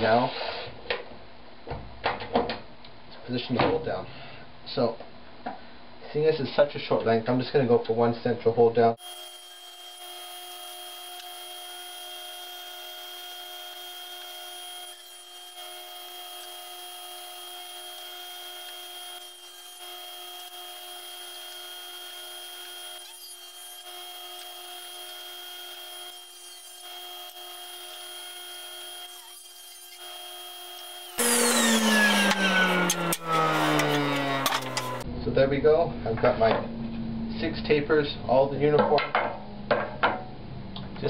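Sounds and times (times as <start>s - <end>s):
table saw whining: 9.0s - 35.0s.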